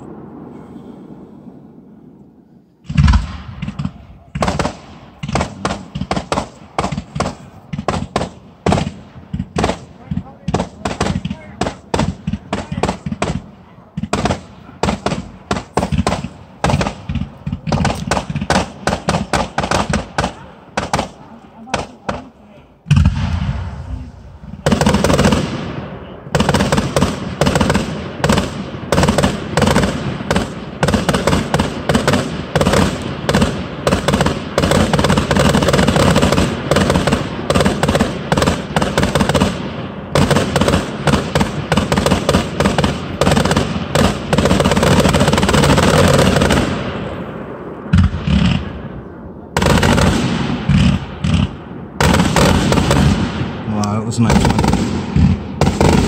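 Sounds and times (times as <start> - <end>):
fireworks bangs and crackling: 2.8 - 56.0.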